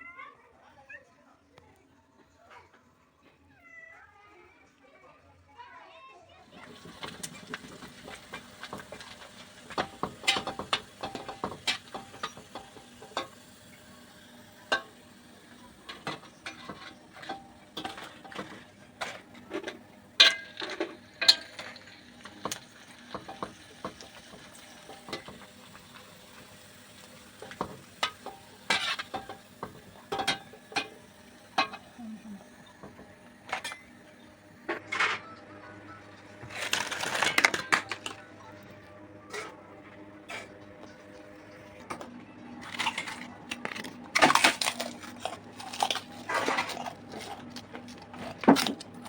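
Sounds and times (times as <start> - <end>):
crackers frying in oil: 6.4 - 34.8, 35.5 - 39.1, 40.2 - 49.0.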